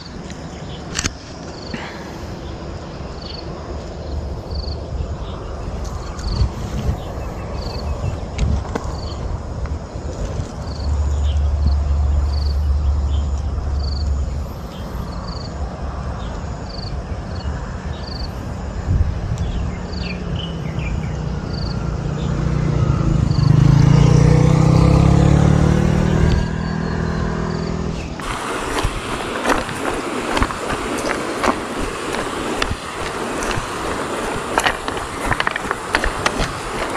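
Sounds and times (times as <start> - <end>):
vehicle engine passing: 20.5 - 36.9
rushing hiss: 28.0 - 36.9.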